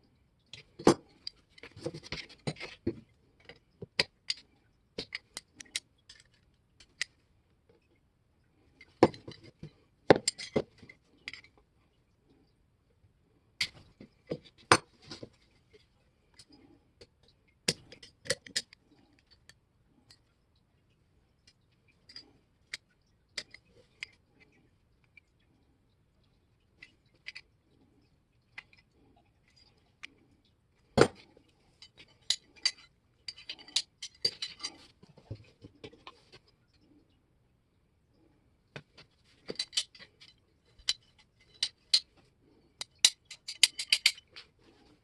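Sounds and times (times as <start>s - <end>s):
metal tools clicking and clinking: 8.8s - 11.5s, 31.8s - 34.9s, 39.4s - 42.2s, 42.8s - 44.5s.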